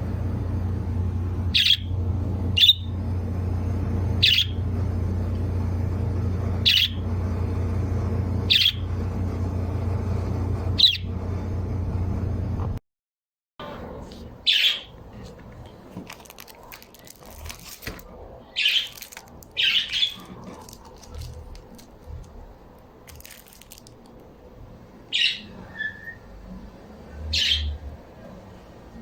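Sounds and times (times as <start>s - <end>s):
birds giving short high calls: 1.5s - 3.0s, 4.1s - 4.7s, 6.6s - 7.1s, 8.4s - 8.9s, 10.8s - 11.1s, 14.5s - 15.0s, 18.5s - 19.0s, 19.6s - 20.4s, 25.1s - 26.2s, 27.3s - 27.8s.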